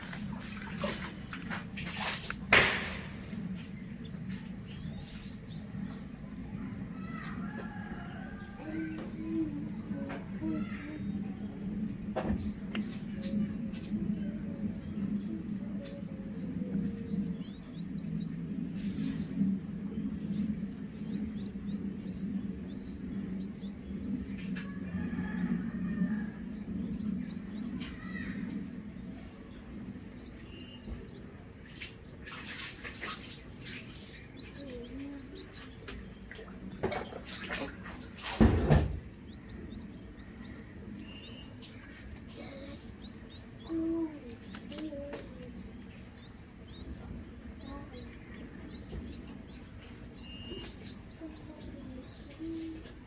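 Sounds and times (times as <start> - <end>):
small birds chirping: 0.0 - 53.0
loud knock: 38.4 - 39.1.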